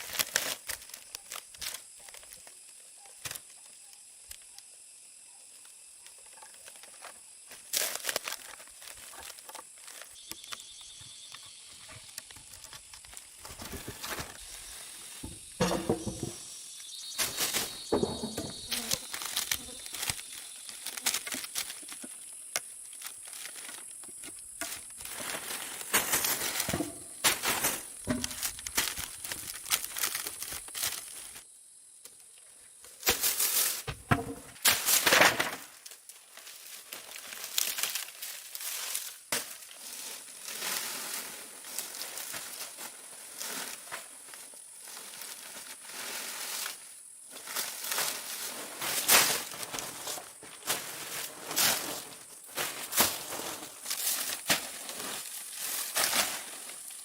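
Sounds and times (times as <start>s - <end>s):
high-pitched insect drone: 10.0s - 13.0s.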